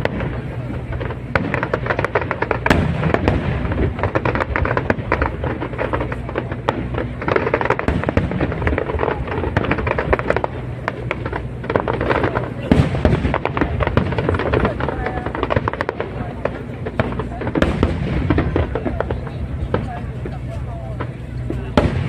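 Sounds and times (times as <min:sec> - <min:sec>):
fireworks crackling and popping: 0:00.0 - 0:22.0
low rumble of shell bursts: 0:00.0 - 0:22.0.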